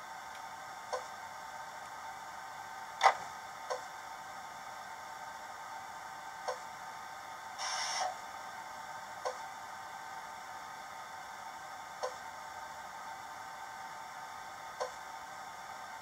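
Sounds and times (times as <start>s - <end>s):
air-conditioning hiss: 0.0s - 16.0s
short air hiss: 7.6s - 8.2s.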